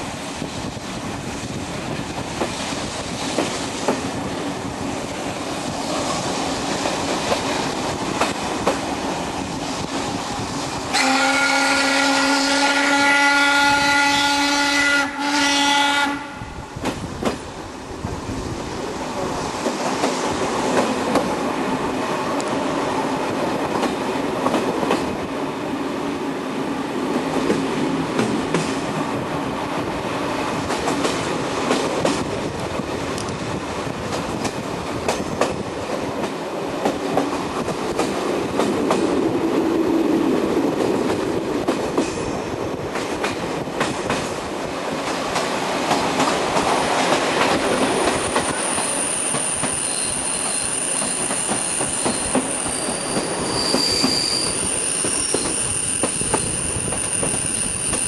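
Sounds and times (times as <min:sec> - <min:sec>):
rail clatter: 0:05.1 - 0:10.5, 0:16.8 - 0:18.2, 0:19.2 - 0:21.5, 0:23.5 - 0:25.3, 0:27.1 - 0:29.2, 0:30.5 - 0:39.6, 0:40.4 - 0:49.8
steam locomotive whistle: 0:10.9 - 0:16.6, 0:48.2 - 0:58.0.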